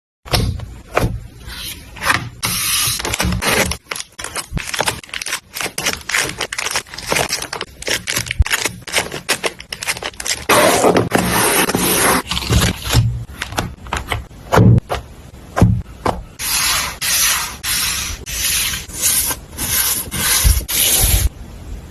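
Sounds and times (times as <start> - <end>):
paper scraping and rustling: 1.5 - 14.2.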